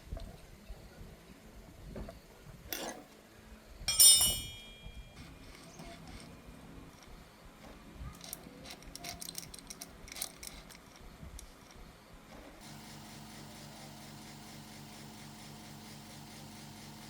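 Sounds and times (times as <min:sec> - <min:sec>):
metal parts and tools clinking: 0:02.7 - 0:03.0, 0:03.9 - 0:05.2, 0:08.2 - 0:11.5.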